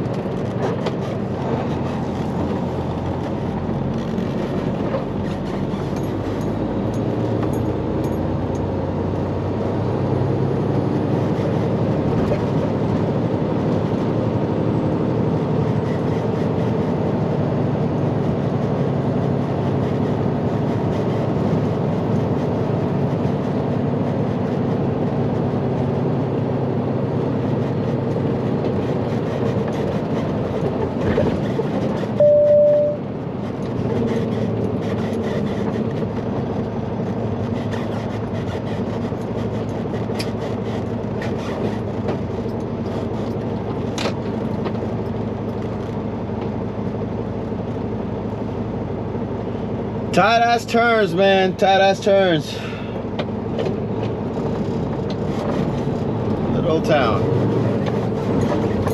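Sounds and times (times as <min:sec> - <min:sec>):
road noise: 0:00.0 - 0:58.9
truck diesel engine droning: 0:00.0 - 0:58.9
short electronic beep: 0:32.2 - 0:33.0.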